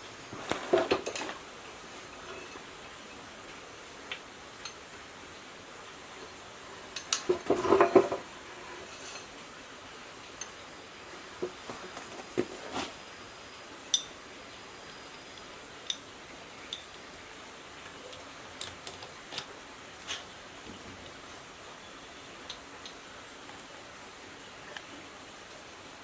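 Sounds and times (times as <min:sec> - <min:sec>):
metal tools clinking: 0:00.4 - 0:02.8, 0:06.8 - 0:09.4.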